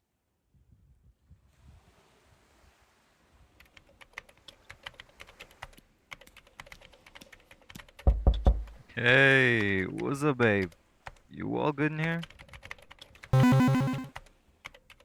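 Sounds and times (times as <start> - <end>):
typing on keyboard: 3.6 - 8.1, 12.2 - 15.0.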